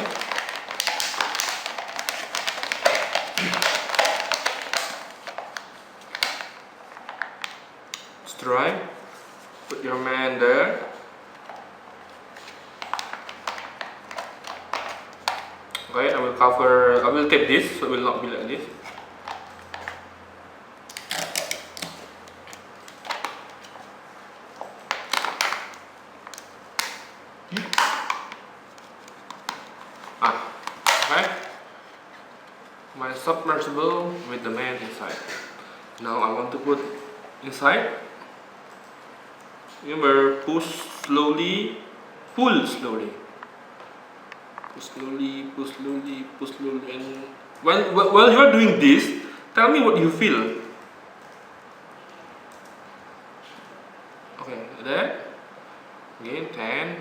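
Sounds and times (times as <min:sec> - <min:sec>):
adhesive tape ripping off roll: 0:00.0 - 0:06.6, 0:20.9 - 0:22.1
paper rustling: 0:00.0 - 0:07.3.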